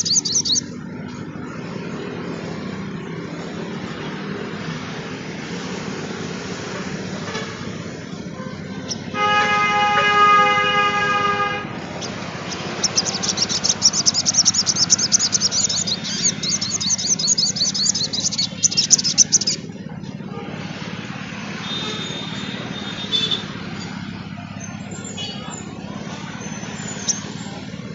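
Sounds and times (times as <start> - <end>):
bird twittering song: 0.0 - 4.9, 8.6 - 9.2, 11.8 - 19.8, 21.6 - 27.9
horn honk: 7.0 - 11.8, 21.5 - 24.1.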